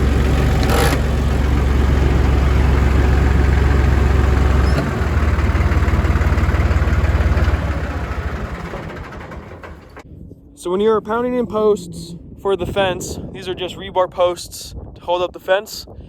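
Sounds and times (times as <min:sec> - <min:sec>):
heavy vehicle engine idling: 0:00.0 - 0:10.0.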